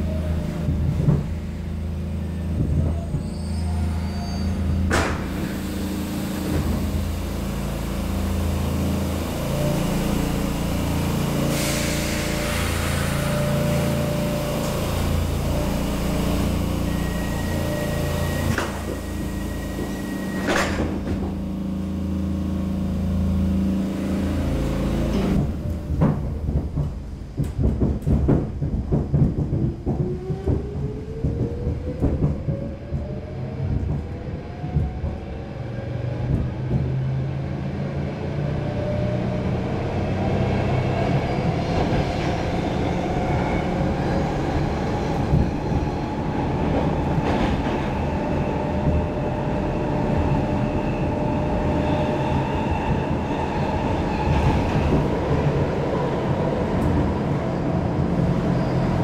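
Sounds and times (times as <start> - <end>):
train doors shutting: 2.3 - 21.8, 23.8 - 37.3, 39.8 - 59.0
air hiss: 11.4 - 13.8
train wheels clattering: 25.1 - 35.3.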